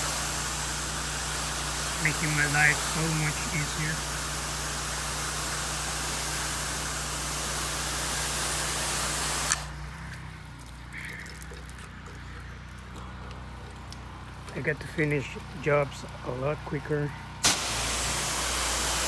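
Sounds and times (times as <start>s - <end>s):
pressure washer spray hiss: 0.0s - 9.8s, 17.4s - 19.0s
pressure washer machine hum: 0.0s - 19.0s.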